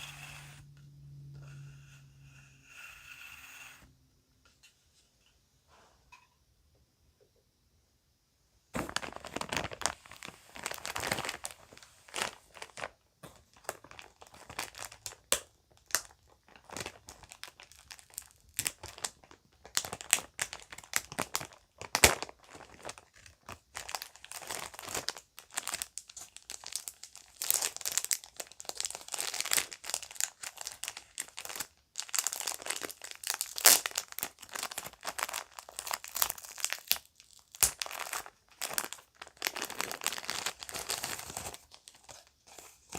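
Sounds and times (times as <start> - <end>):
bags crinkling: 8.8 - 42.9.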